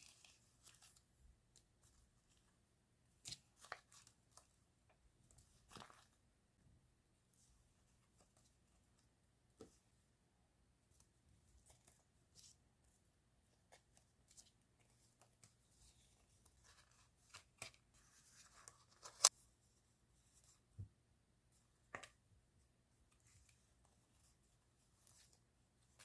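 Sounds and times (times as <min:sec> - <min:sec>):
paper rustling and clicking: 0:16.4 - 0:19.3.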